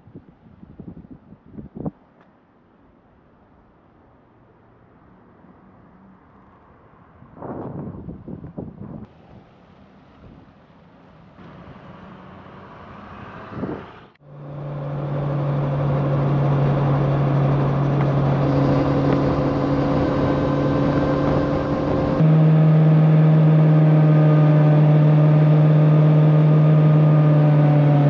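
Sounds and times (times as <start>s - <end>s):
wind and road noise: 0.0s - 28.0s
motorcycle engine hum: 13.5s - 28.0s.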